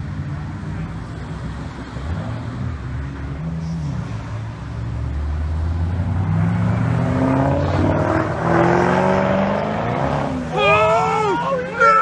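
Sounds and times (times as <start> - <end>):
car engine revving: 3.2 - 10.6
voices crying out: 10.4 - 12.0.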